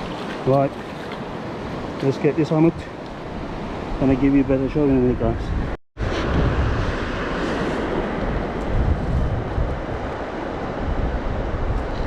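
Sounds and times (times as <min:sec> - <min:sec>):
sea surf: 0:00.0 - 0:12.0
wind buffeting microphone: 0:02.8 - 0:12.0.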